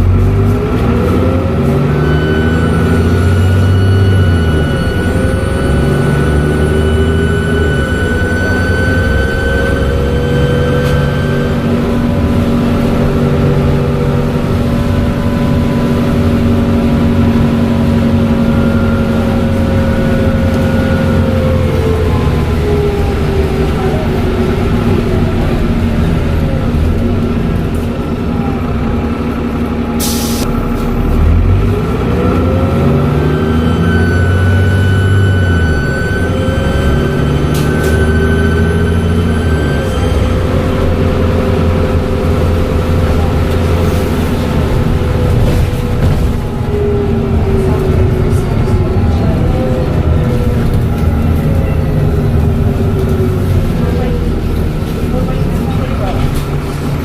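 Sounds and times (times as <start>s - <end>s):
bus engine running: 0.0s - 57.0s
turbocharger whistling: 1.9s - 25.4s, 31.7s - 43.6s
turbo whistle: 2.0s - 11.7s, 33.2s - 40.6s.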